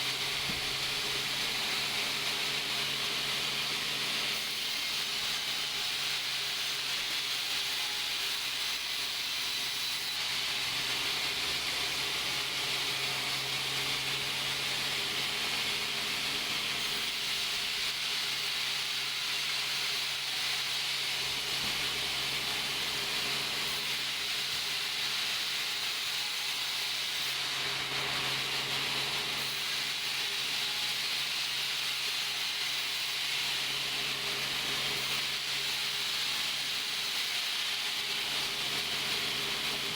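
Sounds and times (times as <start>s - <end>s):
sawmill machinery hiss and hum: 0.0s - 39.9s.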